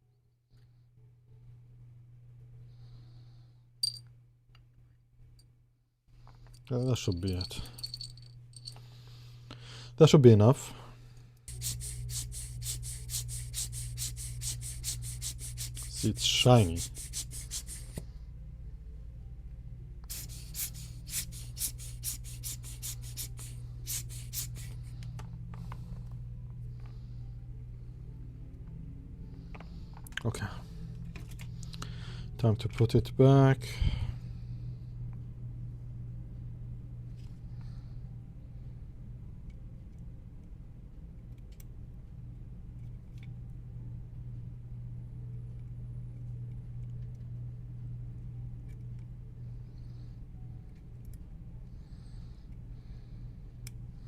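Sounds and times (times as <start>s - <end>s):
steady low hum: 0.0s - 54.0s
quick scrubbing strokes: 11.5s - 18.0s.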